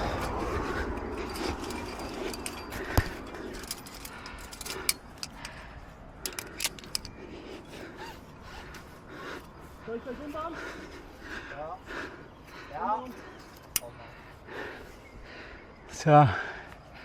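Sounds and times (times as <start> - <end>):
climbing gear clinking: 0.0 - 9.0, 12.7 - 14.0.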